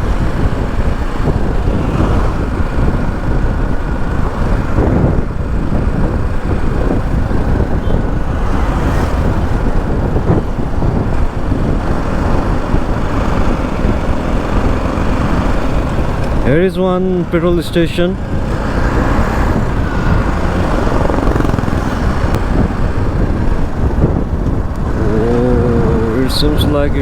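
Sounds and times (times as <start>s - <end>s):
motorcycle engine running: 0.0s - 27.0s
wind rush on microphone: 0.0s - 27.0s.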